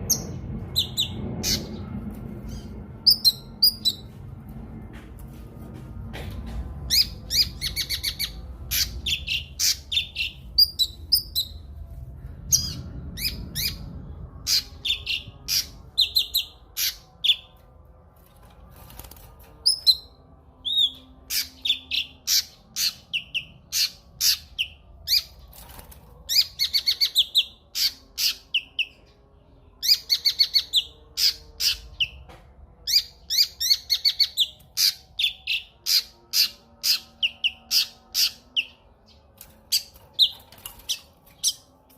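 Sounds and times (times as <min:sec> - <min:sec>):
bird singing high chirps and trills: 0:06.9 - 0:11.7, 0:12.5 - 0:17.6, 0:19.6 - 0:32.2, 0:32.8 - 0:41.9.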